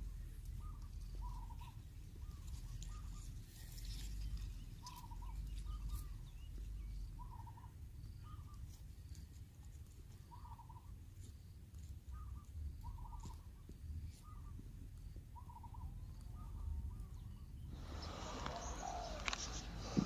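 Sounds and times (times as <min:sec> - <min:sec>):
steady low rumble: 0:00.0 - 0:08.5
bird calling: 0:00.0 - 0:08.8, 0:10.2 - 0:10.9, 0:12.1 - 0:14.6, 0:15.4 - 0:20.0.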